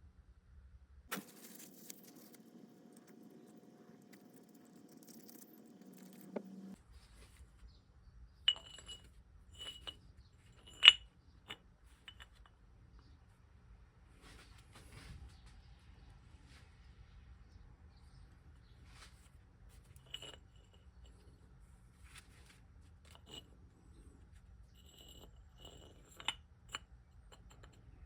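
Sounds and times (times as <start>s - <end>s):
faint steady hum: 0.0s - 28.0s
small metal parts clinking: 1.2s - 6.8s, 8.5s - 10.0s, 10.6s - 12.4s.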